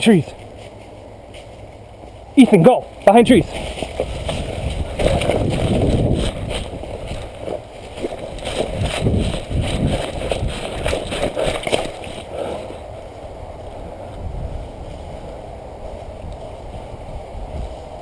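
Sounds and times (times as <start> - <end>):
footsteps through leaves: 0.3 - 12.8
wind rumble on microphone: 3.2 - 18.0
microphone handling noise: 3.4 - 12.9.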